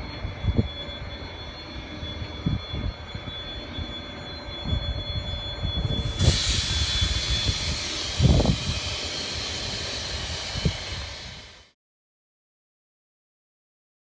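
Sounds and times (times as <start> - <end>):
loud hiss of escaping air: 5.8 - 11.7
low rumbling: 5.8 - 11.7.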